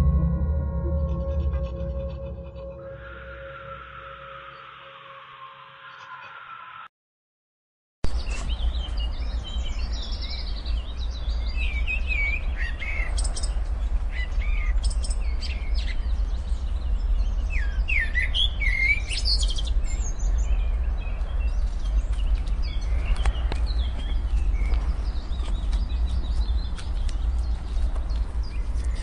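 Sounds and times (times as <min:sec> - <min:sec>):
steady low rumble: 0:00.0 - 0:03.1, 0:08.5 - 0:29.0
small songbirds chirping: 0:08.1 - 0:29.0.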